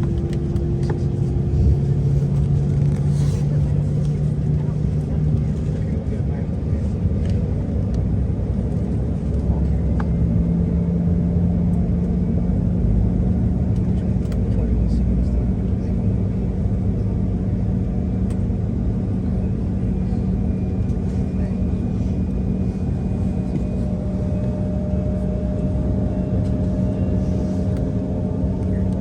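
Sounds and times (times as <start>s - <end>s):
aircraft cabin rumble: 0.0s - 29.0s.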